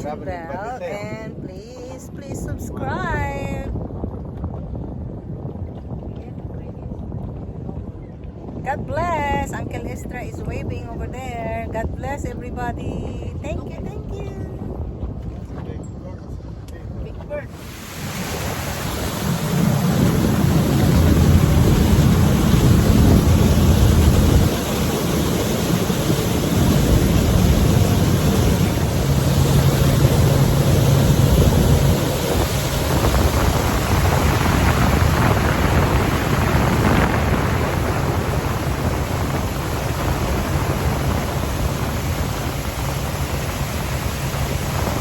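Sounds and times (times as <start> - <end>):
wind buffeting microphone: 0.0 - 45.0
steady low hum: 16.2 - 45.0.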